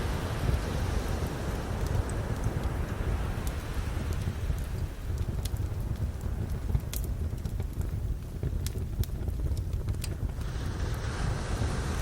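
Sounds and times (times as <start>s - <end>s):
ocean waves: 0.0s - 4.0s, 10.4s - 12.0s
campfire crackling: 0.0s - 12.0s.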